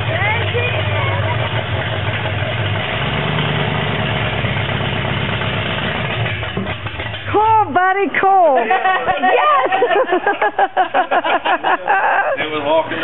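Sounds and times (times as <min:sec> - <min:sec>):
truck engine idling: 0:00.0 - 0:07.8.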